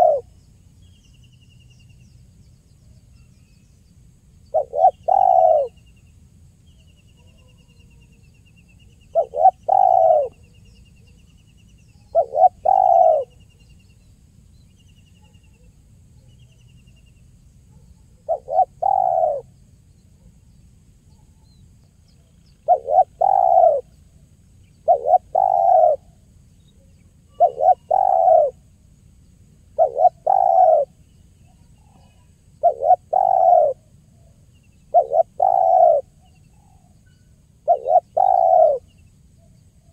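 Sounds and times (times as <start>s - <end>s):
dove cooing: 0.0s - 0.4s, 4.5s - 5.8s, 9.1s - 10.5s, 12.1s - 13.4s, 17.7s - 19.5s, 22.6s - 23.9s, 24.8s - 26.2s, 27.3s - 28.6s, 29.7s - 31.0s, 31.8s - 34.3s, 34.9s - 36.9s, 37.6s - 38.9s.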